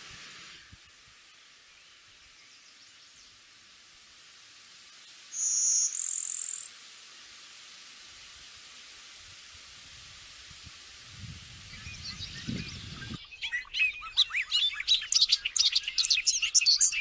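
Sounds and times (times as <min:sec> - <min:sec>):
steady hiss: 0:00.0 - 0:13.4.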